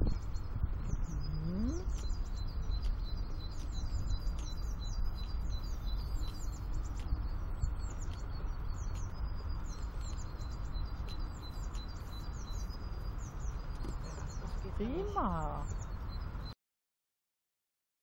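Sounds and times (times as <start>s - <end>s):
songbirds chirping: 0.0s - 16.6s
steady low rumble: 0.0s - 16.6s.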